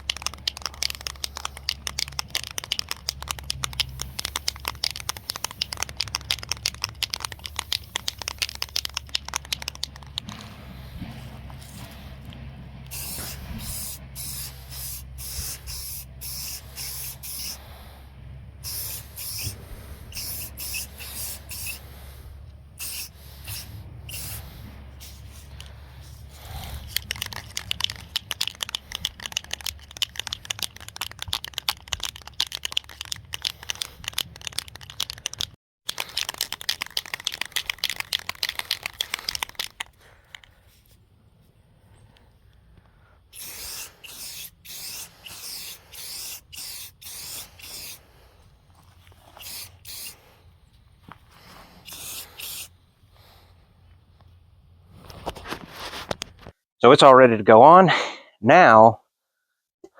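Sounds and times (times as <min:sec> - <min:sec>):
short hissing bursts: 0:12.9 - 0:18.0, 0:18.6 - 0:31.0, 0:43.3 - 0:48.4, 0:49.2 - 0:50.5, 0:51.3 - 0:53.4.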